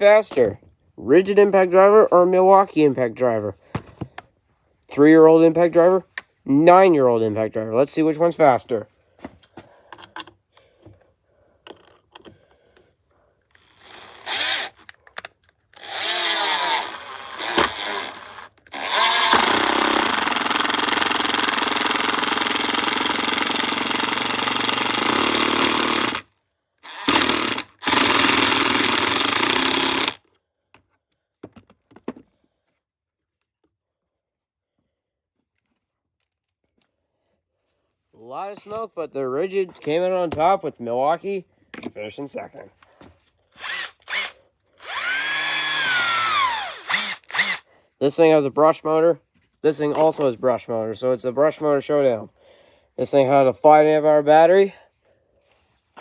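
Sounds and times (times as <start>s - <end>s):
impact drivers hammering fasteners: 13.5s - 26.2s, 26.9s - 30.2s.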